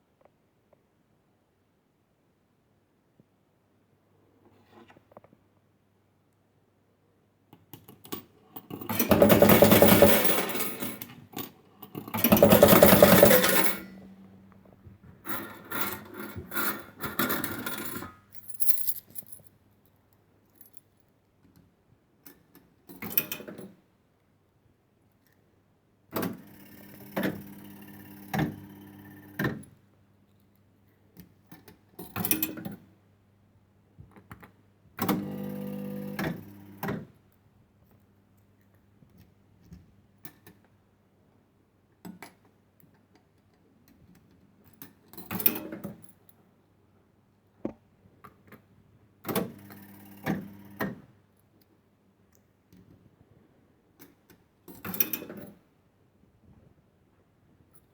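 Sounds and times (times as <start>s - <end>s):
low electrical hum: 8.0s - 21.2s
coins clattering: 8.9s - 11.0s, 12.0s - 14.1s, 18.4s - 19.4s
fruit machine clicks and rattles: 12.0s - 14.1s.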